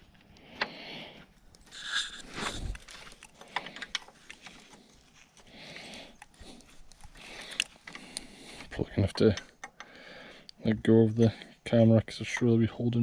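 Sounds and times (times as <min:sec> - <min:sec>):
breathy hisses: 0:00.3 - 0:08.8, 0:09.8 - 0:10.6
spanner clicking and scraping on nuts: 0:06.1 - 0:10.0, 0:11.7 - 0:13.0.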